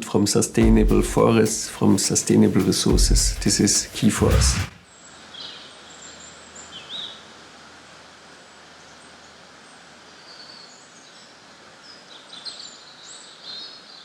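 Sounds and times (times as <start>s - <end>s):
steady outdoor hiss: 0.0s - 14.0s
songbird chirps: 8.4s - 14.0s.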